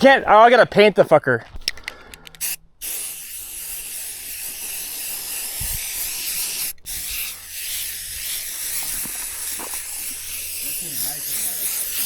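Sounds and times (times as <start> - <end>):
spray paint can hissing: 2.4 - 12.0.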